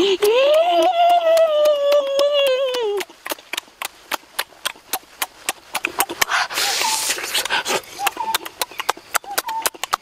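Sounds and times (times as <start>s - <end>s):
lip smacks and chewing clicks: 3.0s - 10.0s
breathy slurping: 5.0s - 8.7s.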